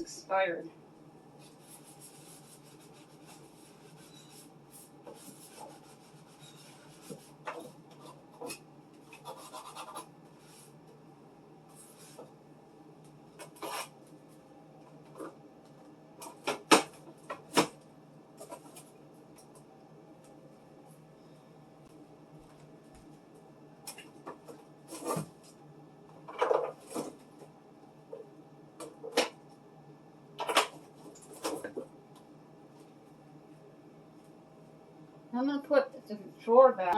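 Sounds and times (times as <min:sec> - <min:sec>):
rubbing and rustling: 0:01.4 - 0:08.6.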